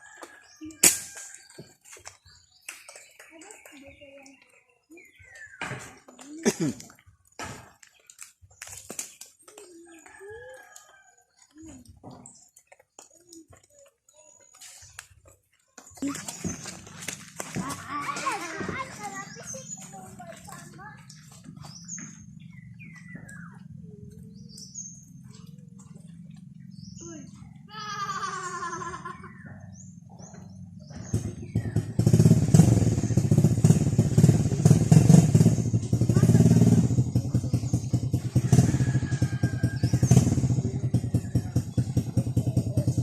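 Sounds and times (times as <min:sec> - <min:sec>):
small birds chirping: 0:00.0 - 0:43.0
small motorcycle engine running: 0:16.0 - 0:28.2, 0:29.2 - 0:43.0.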